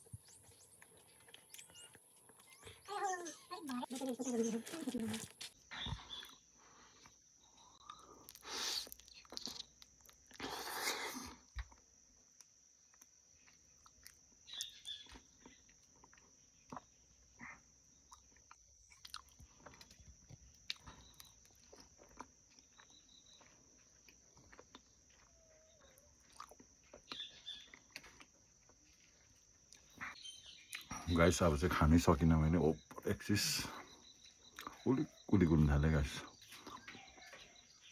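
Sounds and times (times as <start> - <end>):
person chewing and lip-smacking: 7.0 - 30.9, 34.1 - 34.8.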